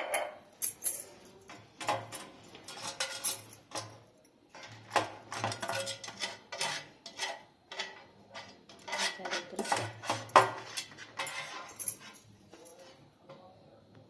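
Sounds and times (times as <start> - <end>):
utensil scraping a metal tin: 2.7 - 3.2, 4.5 - 13.0.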